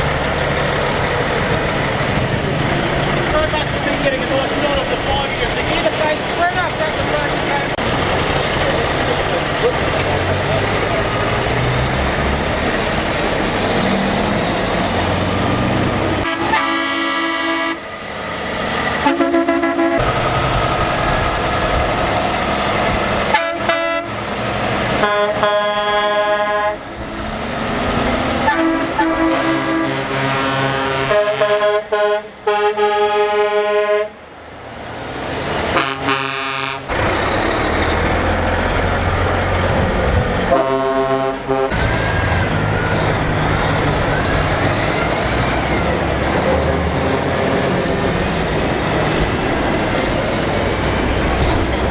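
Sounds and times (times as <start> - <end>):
diesel truck engines passing: 0.0 - 51.9
truck air horn blasts: 16.1 - 17.8, 19.0 - 20.2, 23.3 - 24.2, 25.0 - 26.9, 28.4 - 34.2, 35.7 - 36.9, 40.5 - 43.0.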